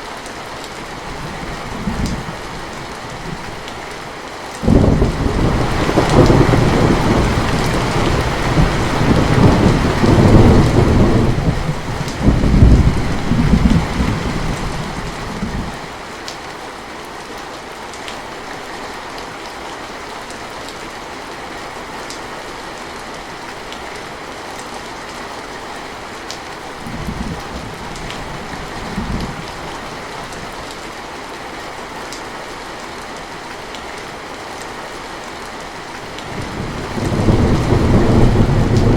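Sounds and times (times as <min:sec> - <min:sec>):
steady rain: 0:00.0 - 0:38.9
thunder rumbling: 0:04.6 - 0:15.8, 0:26.8 - 0:30.6, 0:36.2 - 0:38.9.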